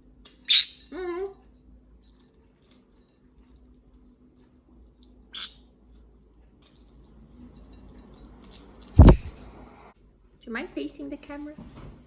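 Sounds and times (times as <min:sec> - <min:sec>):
sharp nut crack: 0:09.0 - 0:09.4.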